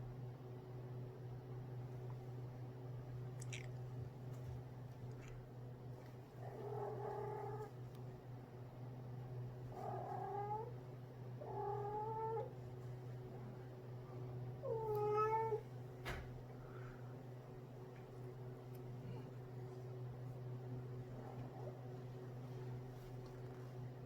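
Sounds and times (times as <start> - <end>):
steady low hum: 0.0 - 24.0
cat yowling: 14.6 - 15.6.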